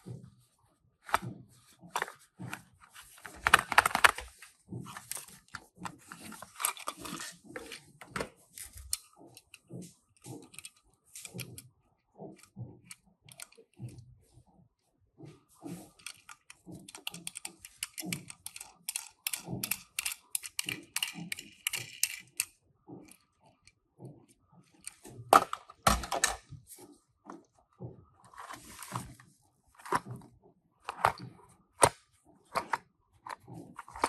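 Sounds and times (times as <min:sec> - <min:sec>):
packaging rustling: 0:02.0 - 0:08.9
toy cars clicking and tapping: 0:12.4 - 0:13.8, 0:15.8 - 0:26.3.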